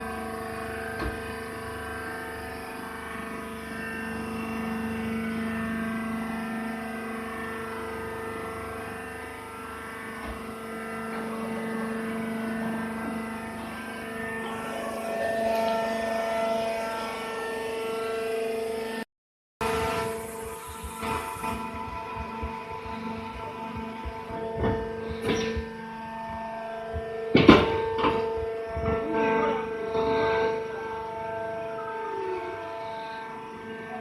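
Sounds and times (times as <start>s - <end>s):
baler motor humming: 19.6s - 34.0s.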